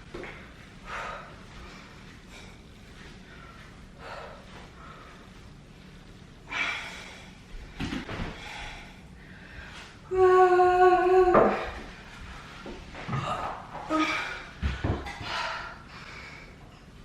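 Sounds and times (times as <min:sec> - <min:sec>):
person breathing hard: 0:00.8 - 0:05.4, 0:08.1 - 0:10.1.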